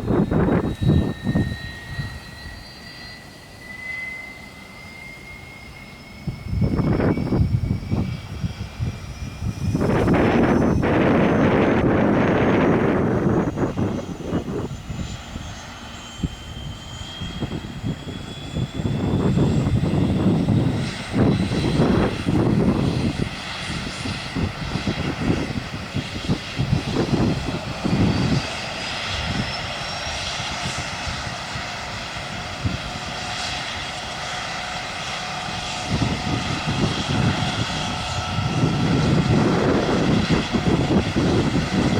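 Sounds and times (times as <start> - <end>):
low rumble surges: 0.0 - 4.2, 4.8 - 33.6
helicopter turbine whine: 0.0 - 41.9.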